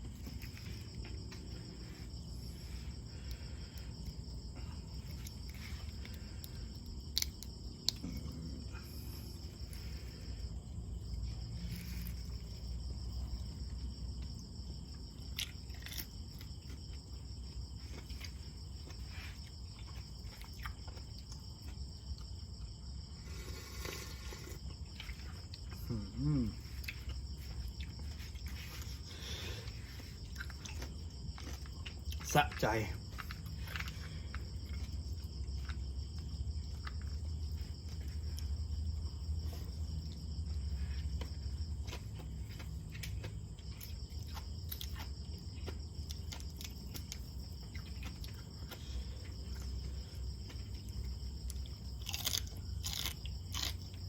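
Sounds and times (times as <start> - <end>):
insects trilling: 0.0 - 54.0
quiet eating sounds: 0.0 - 54.0
hum-like vocal sound: 25.8 - 26.7.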